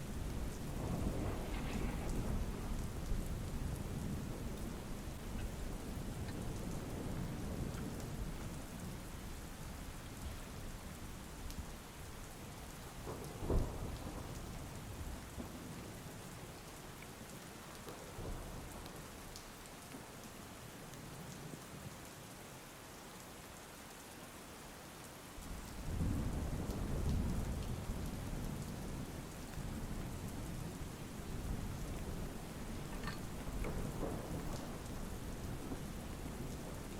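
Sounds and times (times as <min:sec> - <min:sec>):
thunder rumbling: 0:00.0 - 0:11.7, 0:12.6 - 0:15.9, 0:25.5 - 0:36.9
rain falling: 0:00.0 - 0:36.9
sharp thunder crack: 0:00.1 - 0:04.3.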